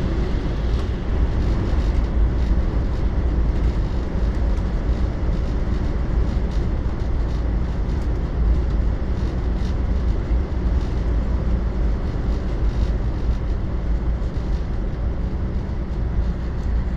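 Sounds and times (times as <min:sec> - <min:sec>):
rushing air: 0:00.0 - 0:04.0
train wheels on rail: 0:00.0 - 0:16.9.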